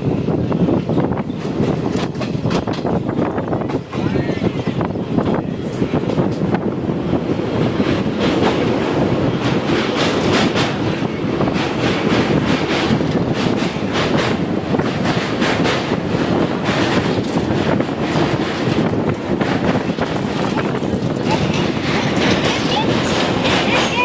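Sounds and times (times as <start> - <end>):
train wheels rumbling on track: 0.0 - 24.0
wheels clicking over rail joints: 11.5 - 24.0.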